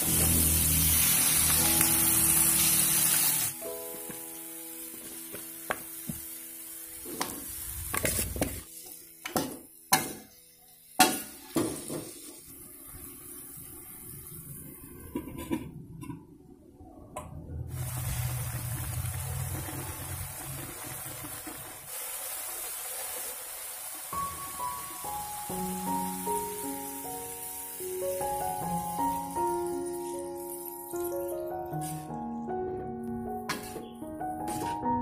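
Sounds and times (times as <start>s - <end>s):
spices sizzling in oil: 0.0s - 14.8s, 17.7s - 32.1s.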